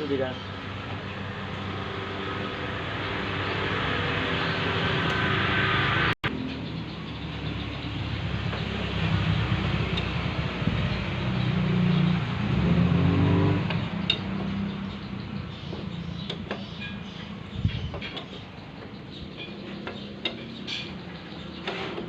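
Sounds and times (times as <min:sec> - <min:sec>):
small engine revving: 0:09.0 - 0:14.8.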